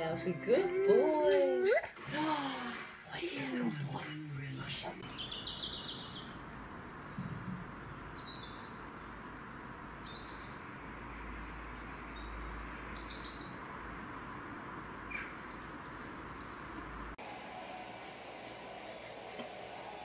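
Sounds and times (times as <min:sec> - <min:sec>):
small birds chirping: 0:03.1 - 0:17.2.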